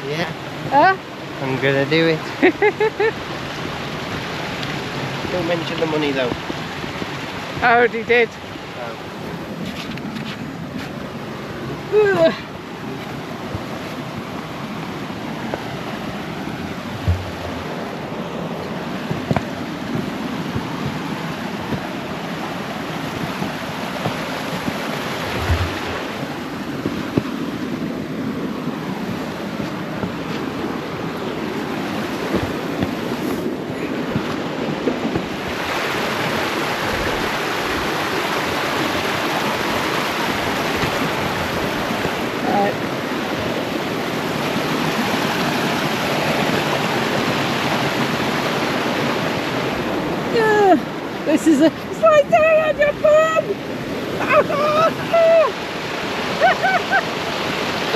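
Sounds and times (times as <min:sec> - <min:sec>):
stream rushing over rocks: 0:00.0 - 0:57.9
low thump: 0:17.0 - 0:17.7, 0:25.3 - 0:26.2.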